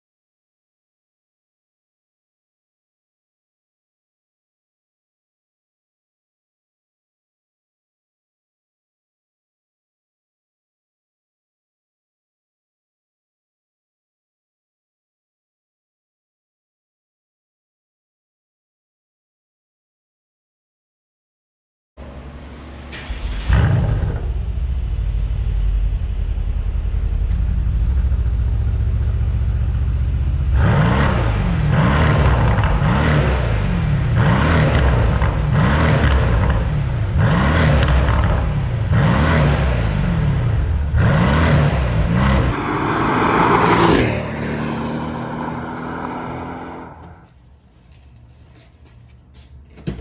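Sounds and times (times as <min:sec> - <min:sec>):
car engine starting: 0:22.0 - 0:47.3
car engine revving: 0:29.8 - 0:47.3.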